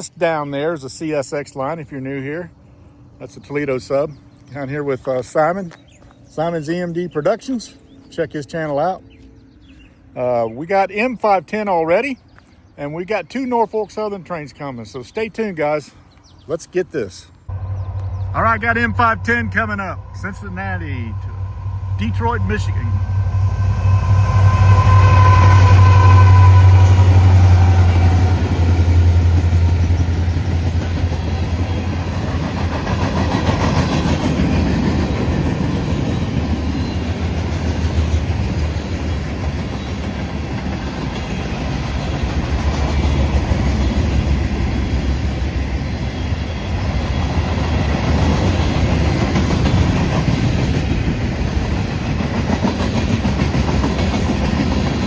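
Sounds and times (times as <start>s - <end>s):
train horn chord: 17.5s - 29.0s
diesel locomotives passing: 17.5s - 55.0s.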